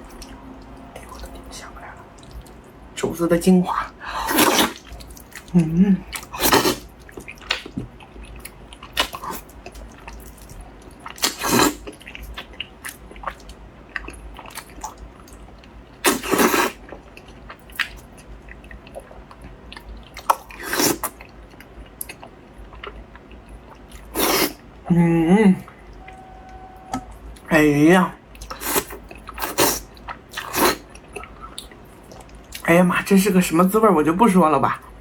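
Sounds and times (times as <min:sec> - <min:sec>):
wet chewing: 0:00.0 - 0:02.8, 0:04.2 - 0:24.6
wet slurp: 0:04.2 - 0:05.2.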